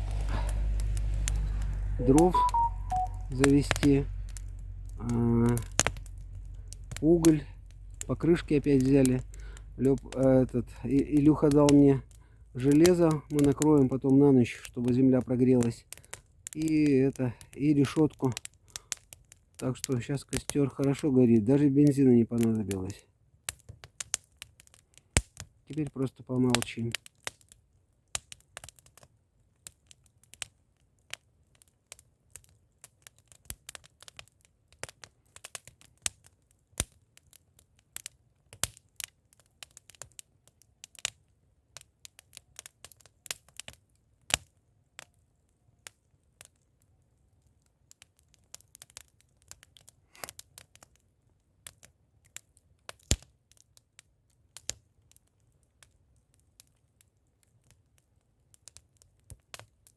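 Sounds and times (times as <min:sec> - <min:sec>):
faint low rumble: 0:00.0 - 0:14.8
bonfire crackling and popping: 0:00.0 - 0:59.9.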